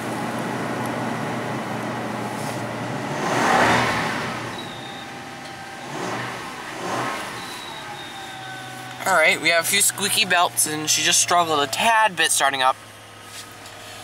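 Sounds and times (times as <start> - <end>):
truck engine starting and idling: 0.0 - 14.0
squeaky belts whistling: 4.5 - 6.2, 6.8 - 11.8.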